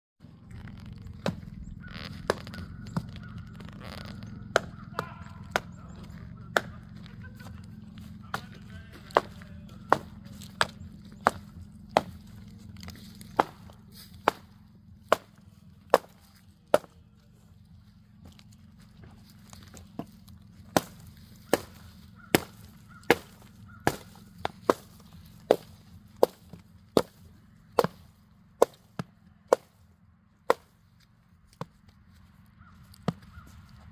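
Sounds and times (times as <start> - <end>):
low steady hum: 0.2 - 33.9
sharp chopping strikes: 2.1 - 7.1, 7.9 - 17.0, 19.4 - 29.8, 30.5 - 30.8.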